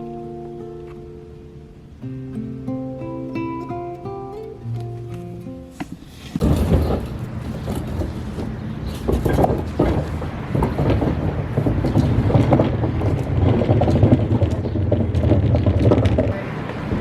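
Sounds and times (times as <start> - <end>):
engine running with rattle: 6.1 - 17.0.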